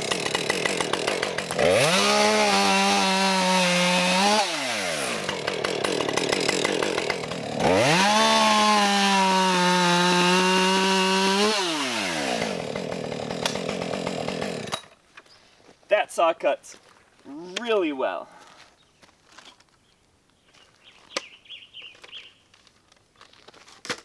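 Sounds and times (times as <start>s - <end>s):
chainsaw idling and revving: 0.0s - 15.0s.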